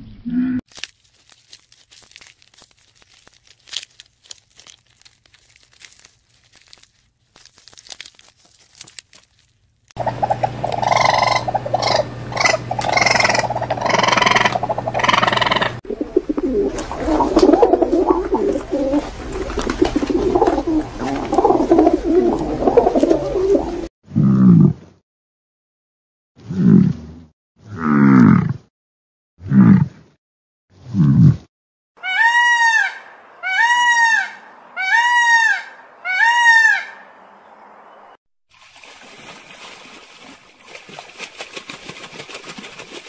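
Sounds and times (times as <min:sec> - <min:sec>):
pigeon cooing: 0:10.0 - 0:23.9
steady low hum: 0:10.0 - 0:23.9.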